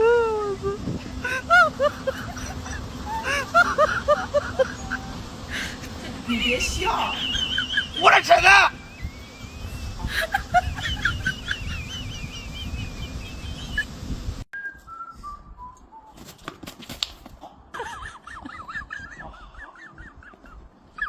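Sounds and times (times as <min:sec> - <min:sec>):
warbling whistle-like tones: 0:06.3 - 0:13.9, 0:14.6 - 0:16.4.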